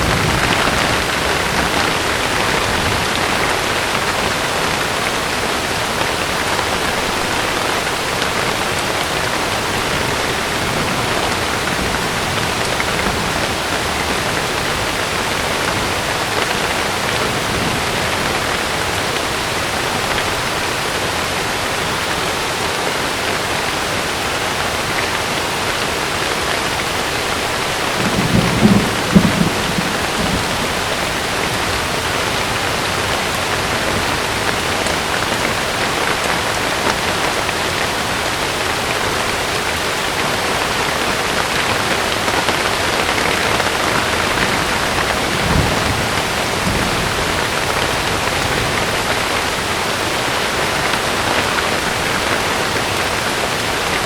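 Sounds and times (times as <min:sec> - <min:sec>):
low rumble of thunder: 0:00.0 - 0:04.8, 0:08.5 - 0:19.3, 0:27.6 - 0:35.2, 0:43.2 - 0:49.7
heavy rain on a tent: 0:00.0 - 0:54.0.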